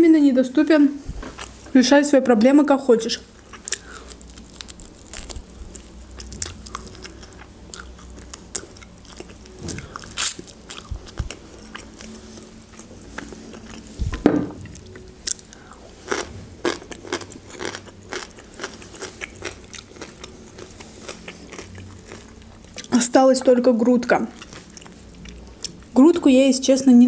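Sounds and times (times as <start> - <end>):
chewing with crunches: 3.3 - 26.0
loud thump: 14.1 - 14.7.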